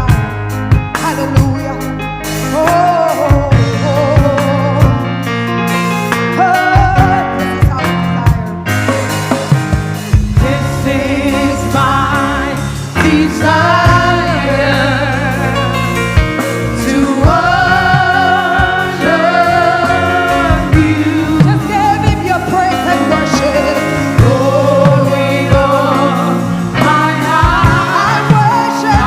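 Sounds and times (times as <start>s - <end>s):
band with drums and bass: 0.0s - 29.0s
singers holding long notes: 10.4s - 29.0s.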